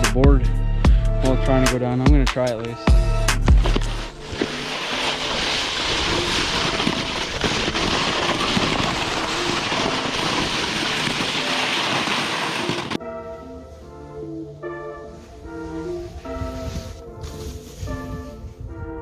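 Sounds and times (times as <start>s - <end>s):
wind on microphone: 2.9s - 13.0s, 15.1s - 19.0s
snowboard scraping over snow: 3.5s - 13.0s, 15.1s - 18.6s.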